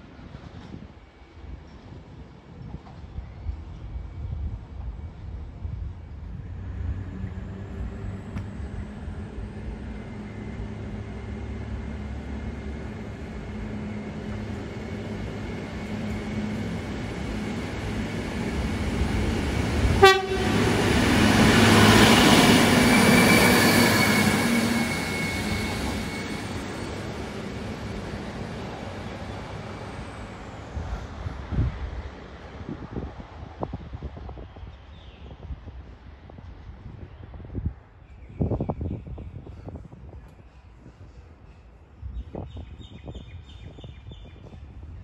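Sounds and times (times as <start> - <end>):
diesel railcar rumbling past: 0.0 - 45.0
train horn toot: 20.0 - 20.8.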